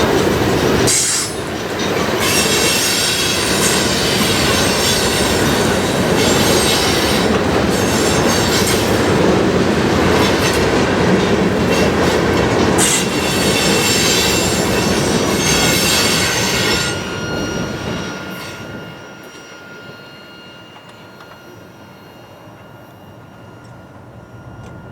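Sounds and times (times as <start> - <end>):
steel wheels squealing on rails: 0.0 - 24.9.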